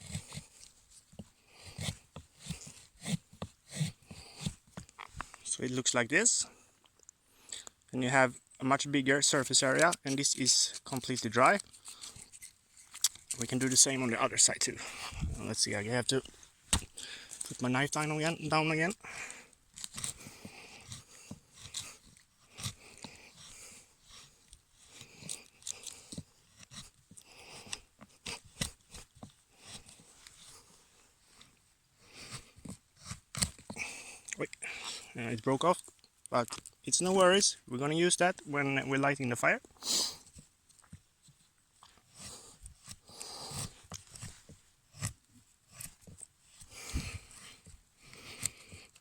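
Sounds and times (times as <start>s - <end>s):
knife scraping wood: 0.0s - 5.4s, 9.6s - 35.1s, 39.8s - 49.0s.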